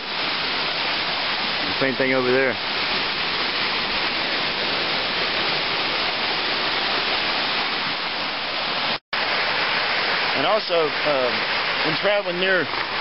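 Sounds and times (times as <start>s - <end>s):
mountain creek rushing: 0.0s - 13.0s.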